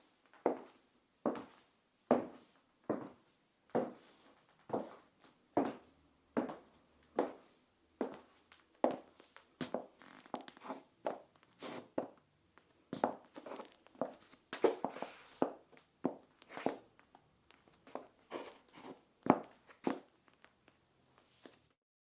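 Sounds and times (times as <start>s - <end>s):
shoe scraping scuff: 11.6s - 12.0s, 13.0s - 15.6s, 16.5s - 16.8s.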